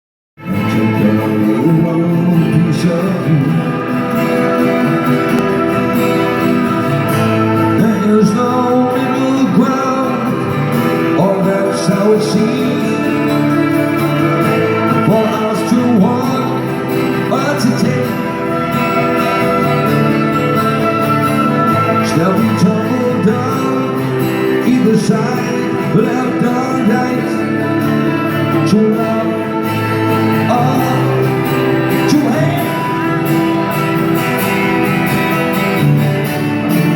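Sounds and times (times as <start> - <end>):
man singing: 0.4 - 36.9
rock band playing live: 0.4 - 36.9.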